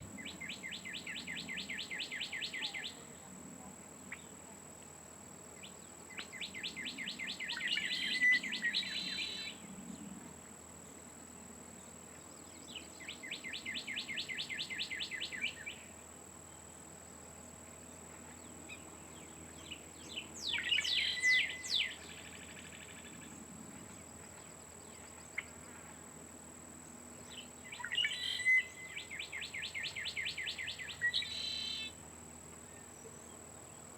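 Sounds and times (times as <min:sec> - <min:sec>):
songbird trilling: 0:06.1 - 0:09.6, 0:19.6 - 0:23.0, 0:27.3 - 0:32.0.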